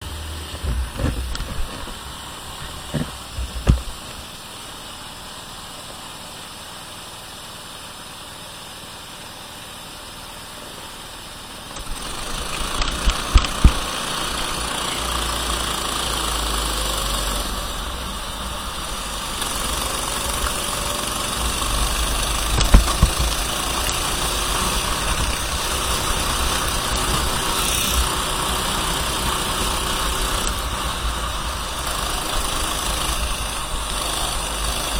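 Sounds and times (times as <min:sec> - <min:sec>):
kart engine running: 0:00.0 - 0:06.3, 0:08.2 - 0:34.9
sharp knocks: 0:21.3 - 0:24.0.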